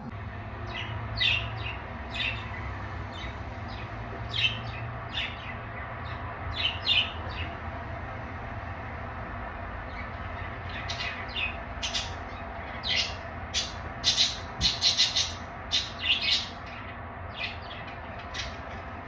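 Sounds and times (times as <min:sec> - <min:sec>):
budgerigars chirping: 0:00.7 - 0:07.6, 0:10.4 - 0:18.7.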